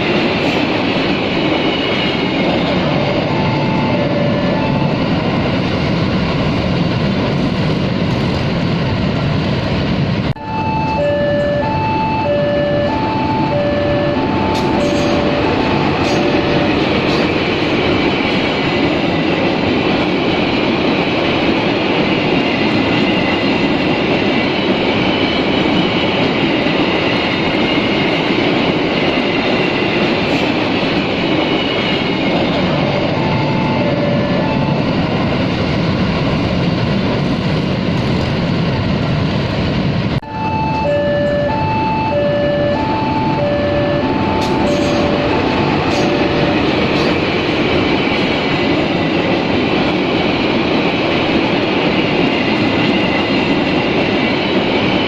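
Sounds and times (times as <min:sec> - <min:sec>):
freight train rumbling past: 0:00.0 - 0:55.0
two-tone electronic beeping: 0:03.0 - 0:05.1, 0:10.4 - 0:16.9, 0:32.8 - 0:35.0, 0:40.2 - 0:46.8.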